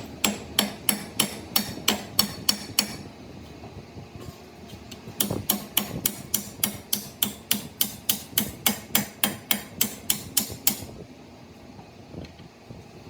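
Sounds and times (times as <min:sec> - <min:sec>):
hammer striking metal: 0:00.0 - 0:03.1, 0:05.2 - 0:10.9.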